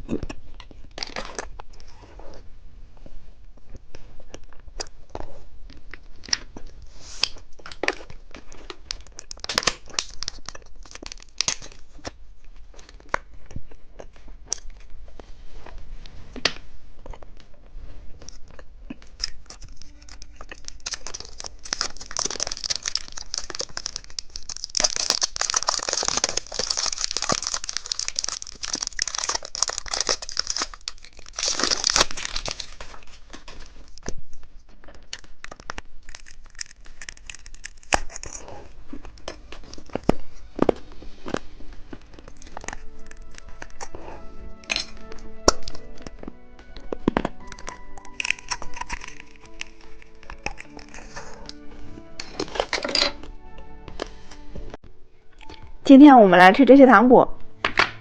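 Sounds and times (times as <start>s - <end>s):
plastic packaging crinkling: 0.6s - 2.0s, 5.8s - 15.0s, 18.2s - 53.3s.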